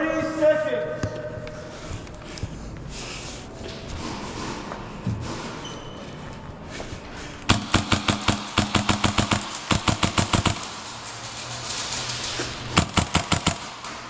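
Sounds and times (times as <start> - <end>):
airsoft gun firing: 7.5 - 11.0, 12.8 - 14.0.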